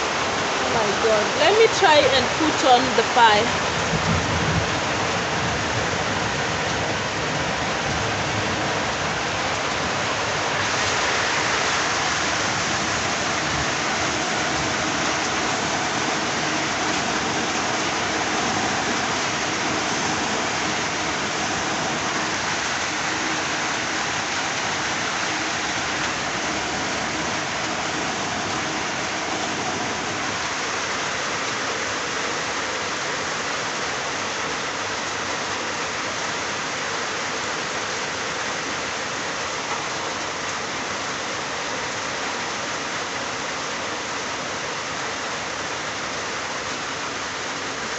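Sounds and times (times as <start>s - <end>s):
heavy rain: 0.0s - 47.9s.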